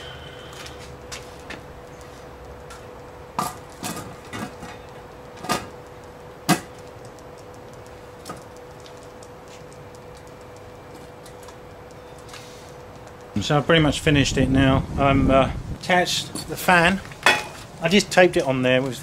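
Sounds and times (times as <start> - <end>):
faint steady hum: 0.0 - 19.0
knocks of hard objects: 6.5 - 6.7.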